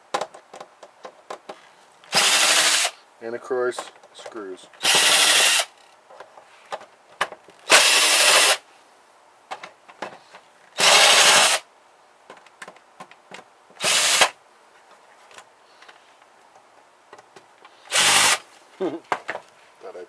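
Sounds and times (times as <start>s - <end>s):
power drill running: 2.1s - 3.0s, 4.8s - 5.7s, 7.7s - 8.6s, 10.8s - 11.6s, 13.8s - 14.4s, 17.9s - 18.4s.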